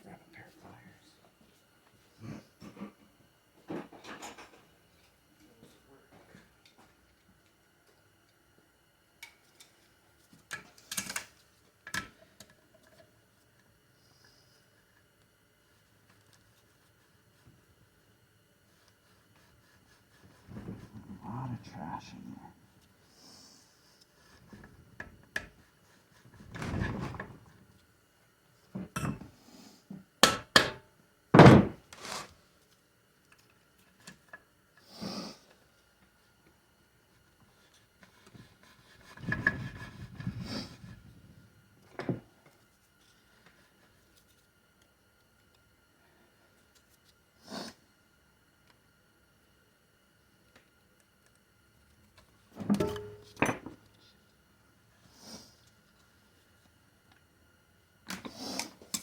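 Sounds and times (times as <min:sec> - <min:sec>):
tools knocking on metal: 0:52.8 - 0:53.8.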